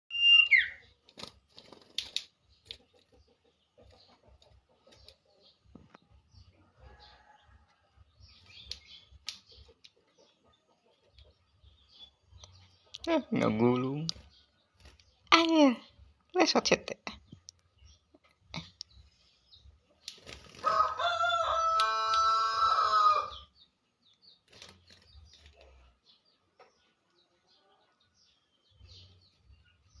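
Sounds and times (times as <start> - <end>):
sharp clicks and rustles: 1.0 - 3.2.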